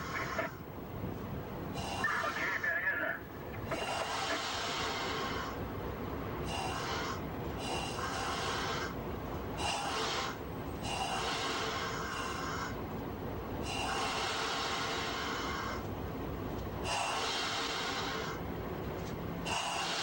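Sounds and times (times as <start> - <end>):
freight train rumbling: 0.0 - 20.0
train hissing and squealing: 1.8 - 5.6, 6.4 - 9.0, 9.6 - 12.8, 13.6 - 15.8, 16.8 - 18.4, 19.4 - 20.0.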